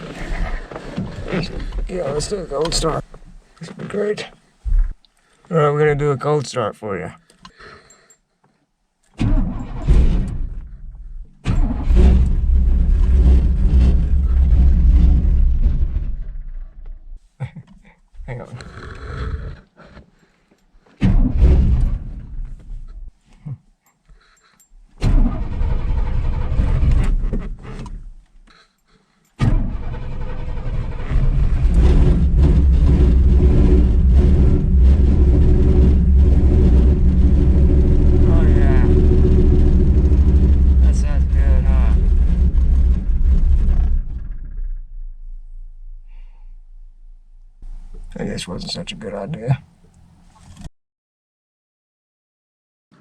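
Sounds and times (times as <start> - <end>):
car engine starting and running: 0.0 - 3.8, 9.1 - 17.1, 25.0 - 28.2, 29.4 - 50.6.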